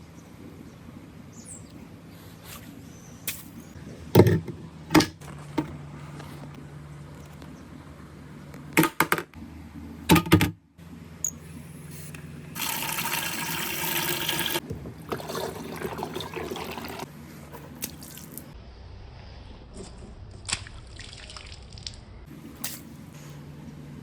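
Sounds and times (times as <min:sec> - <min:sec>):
water pouring and trickling: 0:12.6 - 0:17.1, 0:17.8 - 0:18.6, 0:20.4 - 0:22.0.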